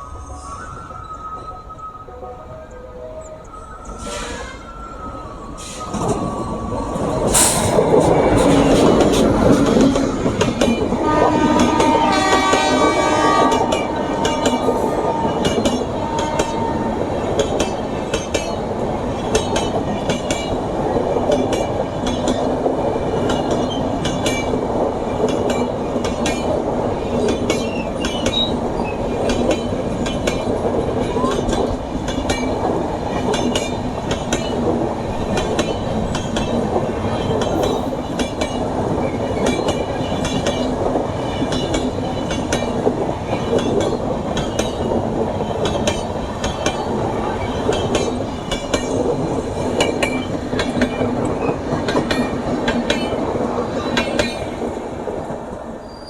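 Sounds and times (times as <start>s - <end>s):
train rumbling on track: 0.0s - 56.0s
train horn: 9.6s - 17.4s.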